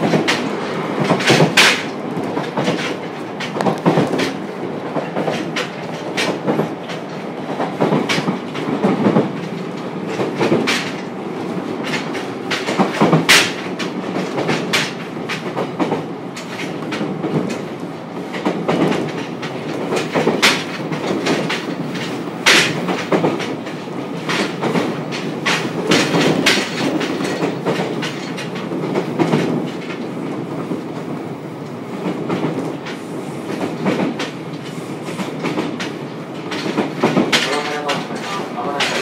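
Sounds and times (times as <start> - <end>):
train wheels rumbling on rails: 0.0 - 39.0
wheels clicking over rail joints: 0.0 - 39.0.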